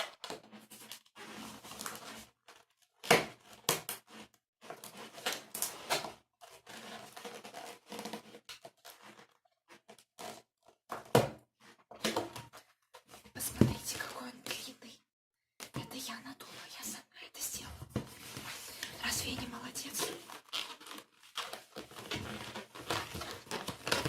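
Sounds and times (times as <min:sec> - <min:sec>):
balloons squeaking and rubbing: 0:00.6 - 0:02.2, 0:18.2 - 0:24.0.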